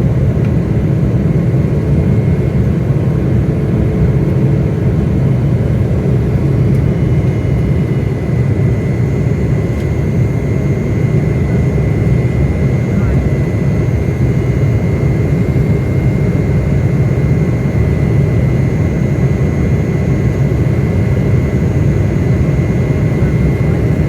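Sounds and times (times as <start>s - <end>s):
airliner engines roaring: 0.0s - 24.0s.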